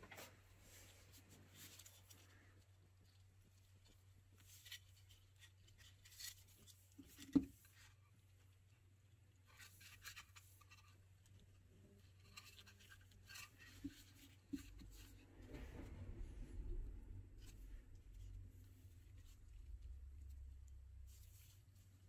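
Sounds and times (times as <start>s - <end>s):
gloved hands rustling and scraping: 0.0s - 22.0s.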